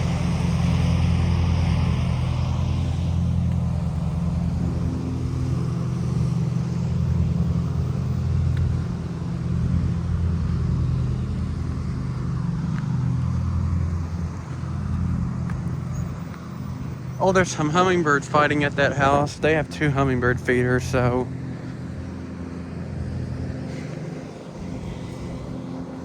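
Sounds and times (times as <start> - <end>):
lawn mower engine running: 0.0 - 26.0.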